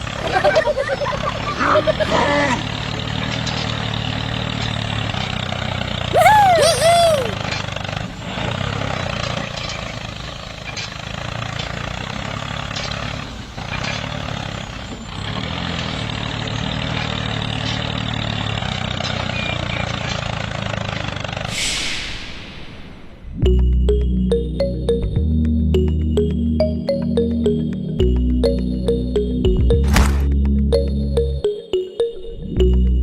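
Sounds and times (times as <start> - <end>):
hissing whoosh: 21.5 - 23.4.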